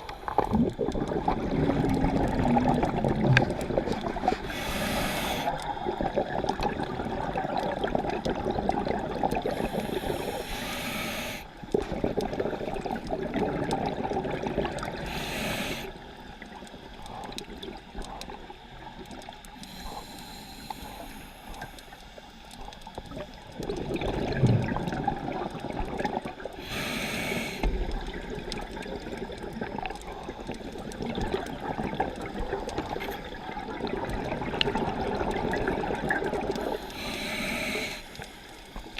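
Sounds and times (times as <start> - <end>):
exhaust bubbling underwater: 0.0 - 4.6, 5.4 - 10.4, 11.6 - 15.2, 22.6 - 27.0, 27.6 - 36.9
regulator inhale hiss: 4.2 - 5.6, 9.4 - 11.6, 15.0 - 16.2, 19.5 - 22.4, 26.6 - 28.0, 36.6 - 38.9.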